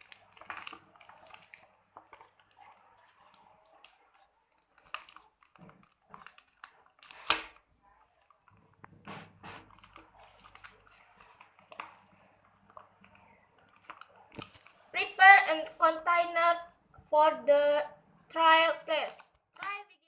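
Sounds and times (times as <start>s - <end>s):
plastic bottle clicks and crinkles: 0.0s - 2.7s, 3.3s - 7.7s, 9.6s - 14.8s.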